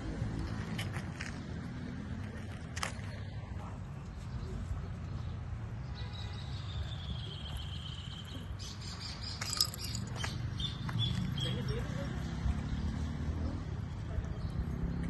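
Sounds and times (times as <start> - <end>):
sharp chirps and clicks: 9.3 - 10.4.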